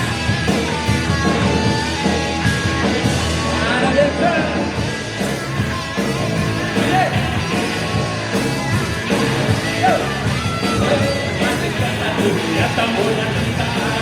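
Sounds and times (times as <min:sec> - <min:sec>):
live band playing amplified music: 0:00.0 - 0:14.0.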